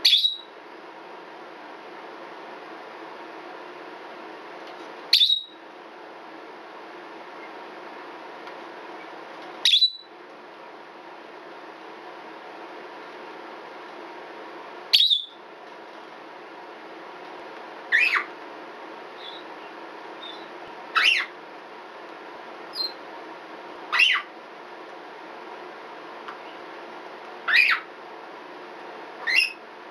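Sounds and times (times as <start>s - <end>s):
soft parrot chirps: 0.0s - 0.5s, 5.1s - 5.6s, 9.6s - 10.1s, 14.9s - 15.4s, 17.9s - 18.3s, 19.2s - 19.5s, 20.2s - 21.4s, 22.7s - 23.0s, 23.9s - 24.3s, 27.4s - 27.9s, 29.2s - 29.6s
parrot screaming: 17.9s - 18.3s, 20.2s - 21.4s, 23.9s - 24.3s, 27.4s - 27.9s, 29.2s - 29.6s.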